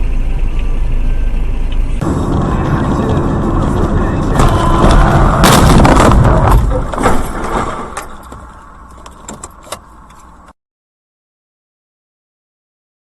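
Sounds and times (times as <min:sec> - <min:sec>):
vehicle crash and grinding: 0:02.0 - 0:09.6.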